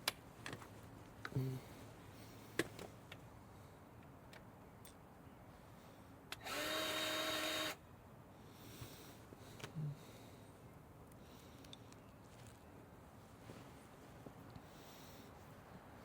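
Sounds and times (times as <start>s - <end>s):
small power tool running: 6.4s - 7.8s.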